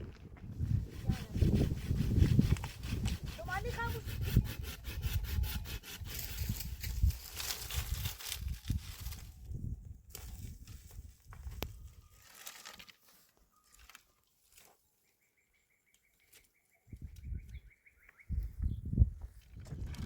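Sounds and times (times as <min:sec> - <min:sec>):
wind rumble on microphone: 0:00.0 - 0:12.1, 0:16.9 - 0:20.0.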